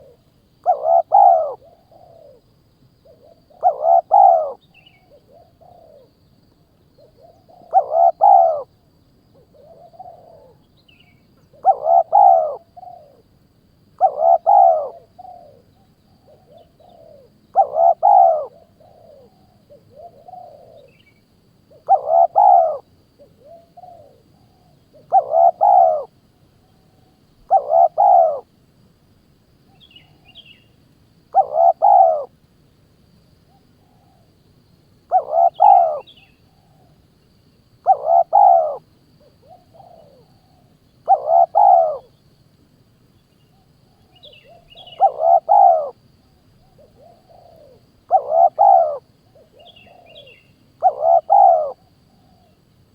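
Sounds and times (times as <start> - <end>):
bird calling: 0.0 - 2.4, 3.0 - 6.1, 7.0 - 8.7, 9.4 - 13.2, 14.0 - 26.1, 27.4 - 28.5, 29.7 - 32.3, 35.1 - 37.0, 37.8 - 42.2, 43.5 - 46.0, 46.6 - 52.6.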